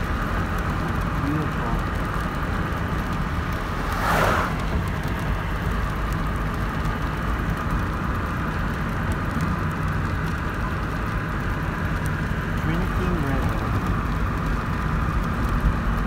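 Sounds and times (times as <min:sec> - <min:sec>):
van engine and road noise: 0:00.0 - 0:16.0
whoosh: 0:03.5 - 0:05.2.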